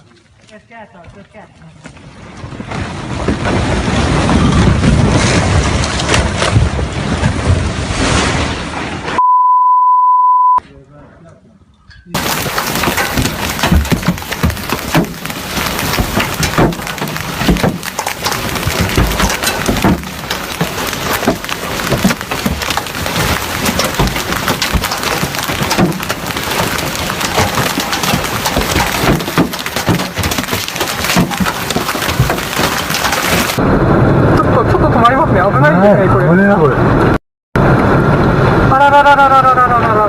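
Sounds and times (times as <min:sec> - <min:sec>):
sharp knocks: 0:12.2 - 0:33.6.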